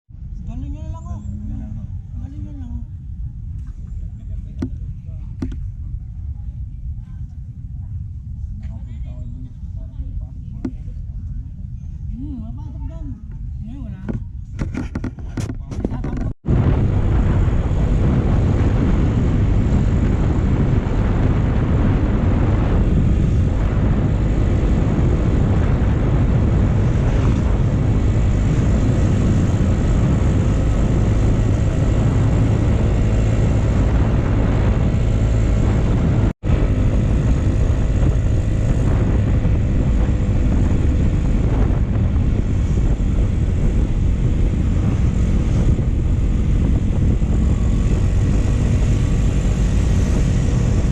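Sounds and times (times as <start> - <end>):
wind noise rushing: 1.8 - 50.9
motorcycle engine running: 14.1 - 50.9.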